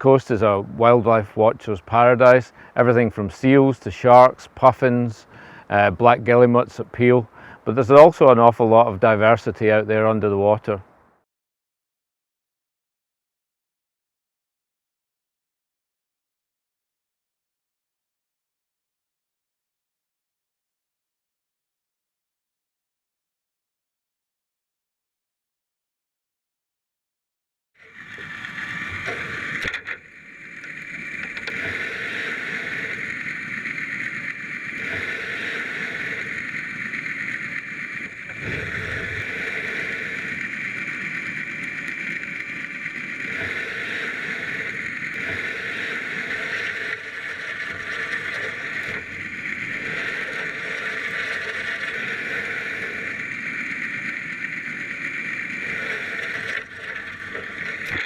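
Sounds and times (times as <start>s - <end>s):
mechanical hum with hiss: 28.1s - 58.0s.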